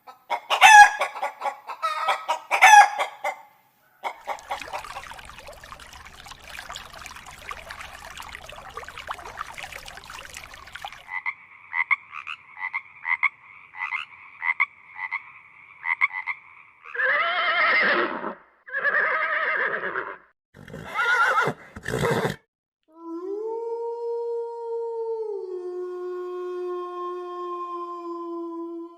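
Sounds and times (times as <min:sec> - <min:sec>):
frogs croaking: 0:04.1 - 0:17.0
horse whinnying: 0:17.0 - 0:22.4.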